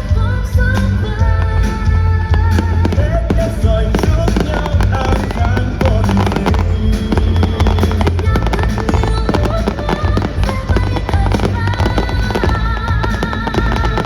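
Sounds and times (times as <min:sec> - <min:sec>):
fireworks bangs and crackles: 0:00.0 - 0:14.0
music playing: 0:00.0 - 0:14.0.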